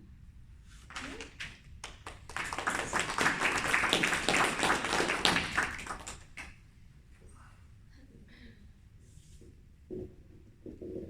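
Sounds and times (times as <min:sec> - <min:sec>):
audience applauding: 0:00.9 - 0:06.6.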